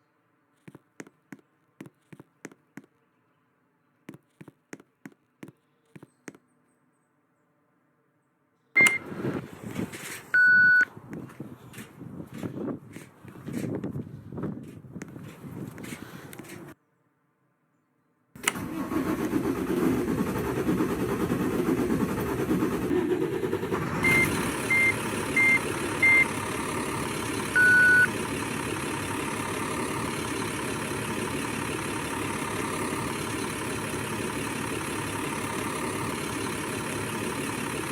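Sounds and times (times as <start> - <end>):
diesel engine starting and idling: 8.8 - 16.8, 18.4 - 37.9
electronic beeps: 10.4 - 10.9, 27.6 - 28.1.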